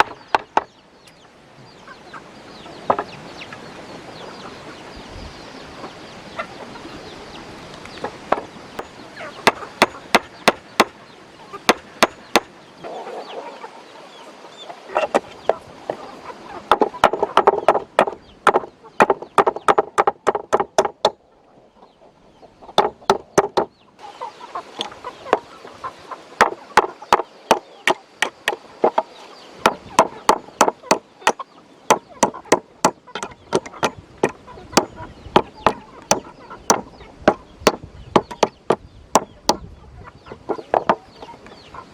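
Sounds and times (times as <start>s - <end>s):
sharp knocks on wood: 0.0s - 0.7s, 8.3s - 8.5s, 9.4s - 11.0s, 11.7s - 12.5s, 16.7s - 21.2s, 22.8s - 23.7s, 29.6s - 39.6s, 40.7s - 41.0s
fowl clucking: 5.8s - 7.0s, 8.0s - 19.7s, 23.9s - 37.5s, 39.2s - 41.9s.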